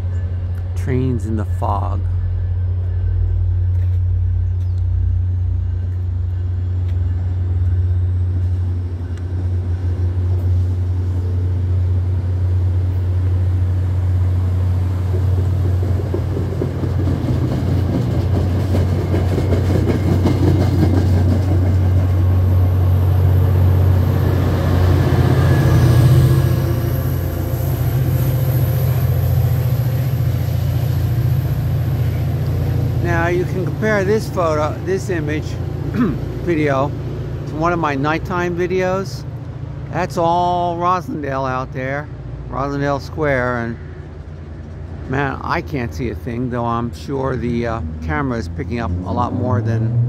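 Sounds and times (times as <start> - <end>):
diesel locomotive: 0.0 - 50.0
train wheels rumbling on rails: 0.0 - 50.0.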